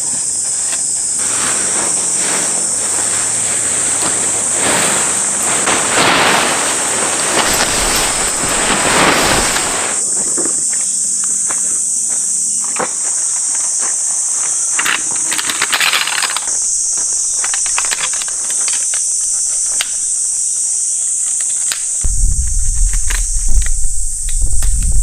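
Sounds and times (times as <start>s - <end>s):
insects buzzing: 0.0s - 25.0s
gear being handled: 4.5s - 9.8s
loud low rumble: 22.0s - 25.0s.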